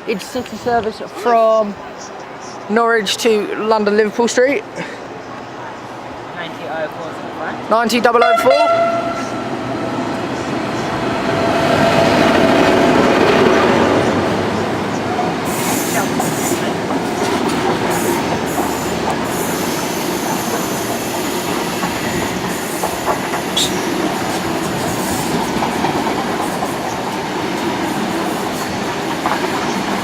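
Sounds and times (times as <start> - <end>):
train wheels rumbling on rail: 8.2 - 30.0
wheels clicking over rail joints: 14.9 - 30.0.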